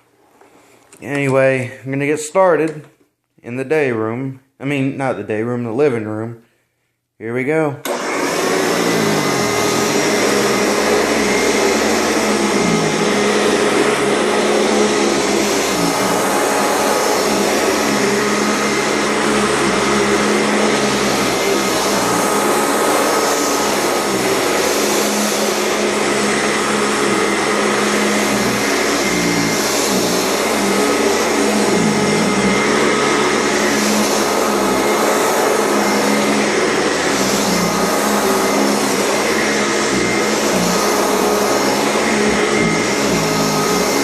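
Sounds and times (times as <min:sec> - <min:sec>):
vacuum cleaner running: 0:07.8 - 0:44.0.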